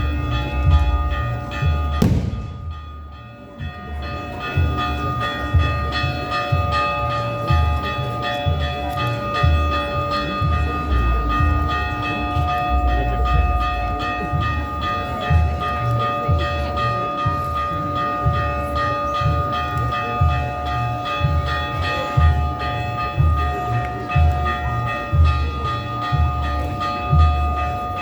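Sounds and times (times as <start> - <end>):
church bell ringing rapidly: 0.0 - 28.0
low rumbling thumps: 2.0 - 3.1.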